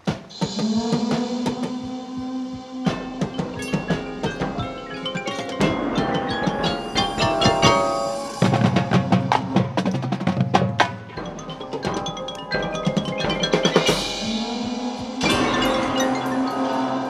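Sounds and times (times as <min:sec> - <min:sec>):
cymbal swell: 0:00.3 - 0:09.6, 0:13.8 - 0:17.0
marimba and glockenspiel notes: 0:02.9 - 0:09.8, 0:10.7 - 0:17.0.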